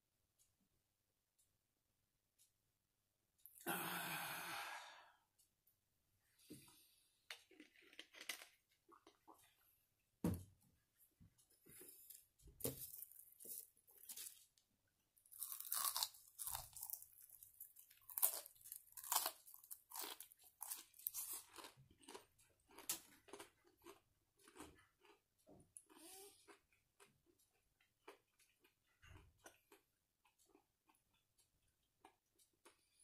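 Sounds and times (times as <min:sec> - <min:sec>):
person crunching fried food: 0:15.2 - 0:25.2.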